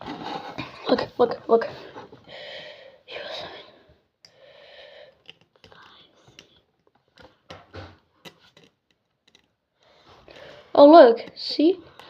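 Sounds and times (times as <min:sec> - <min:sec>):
breathy whisper: 0:04.7 - 0:06.7.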